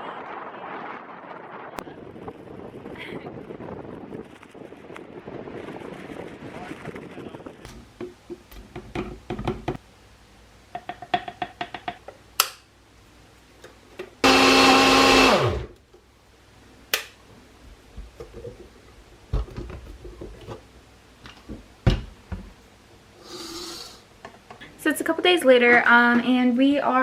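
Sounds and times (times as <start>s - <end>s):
small electric motor running: 23.2s - 24.0s.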